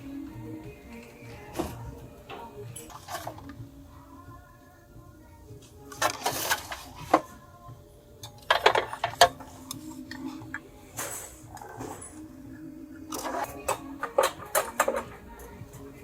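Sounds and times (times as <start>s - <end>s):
faint background music: 0.0s - 16.0s
dishes or utensils clinking: 0.1s - 3.6s, 13.1s - 16.0s.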